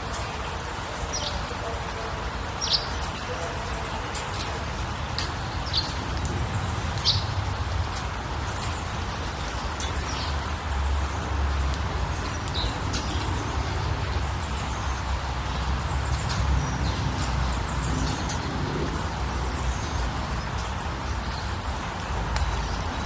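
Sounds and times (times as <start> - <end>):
small birds chirping: 5.2 - 23.0.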